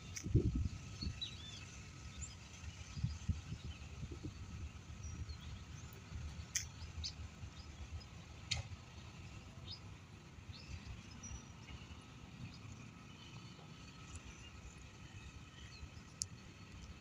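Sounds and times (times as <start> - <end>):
steady low rumble: 0.0 - 17.0
sharp clicks: 6.5 - 6.8.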